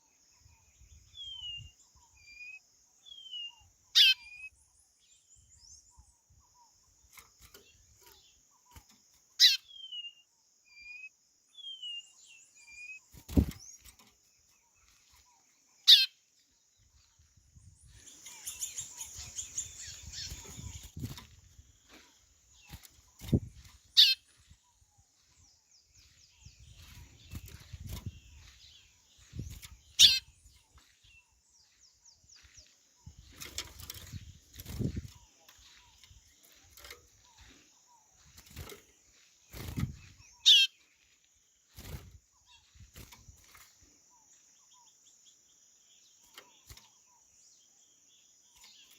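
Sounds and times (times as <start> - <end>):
bird sharp descending calls: 29.9 - 30.3, 40.3 - 40.8.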